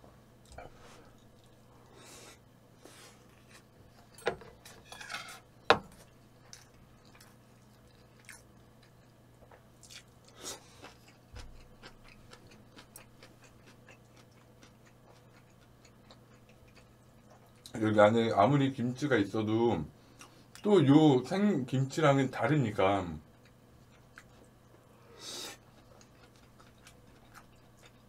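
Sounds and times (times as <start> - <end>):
person chewing food: 6.0 - 17.7, 23.3 - 24.9, 25.5 - 28.0.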